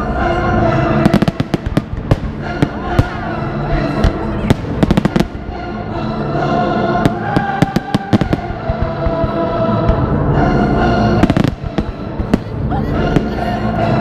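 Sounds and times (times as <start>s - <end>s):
music holding long notes: 0.0s - 14.0s
fireworks bangs and crackles: 1.0s - 5.6s, 7.0s - 10.2s, 11.2s - 13.4s.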